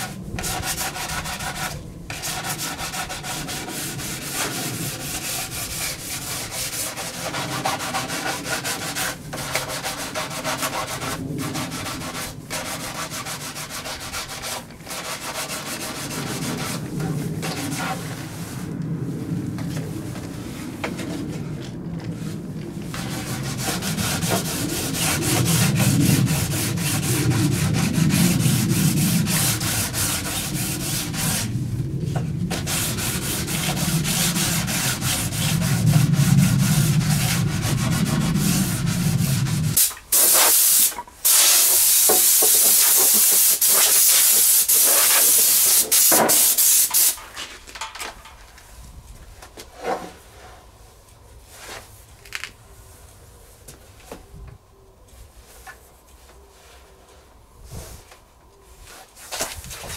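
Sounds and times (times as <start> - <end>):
wood being sanded: 0.0 - 18.3, 22.9 - 31.5, 32.5 - 47.2
steady hiss: 27.2 - 47.3.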